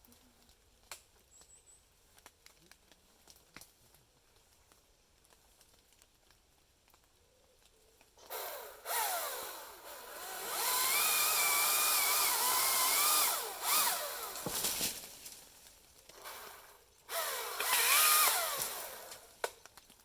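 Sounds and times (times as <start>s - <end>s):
chainsaw revving: 8.2s - 14.7s, 16.2s - 19.3s.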